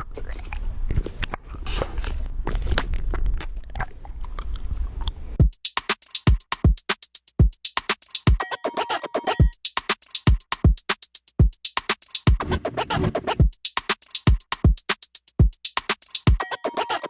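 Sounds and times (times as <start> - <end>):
electronic music with drum machine: 5.4 - 17.0.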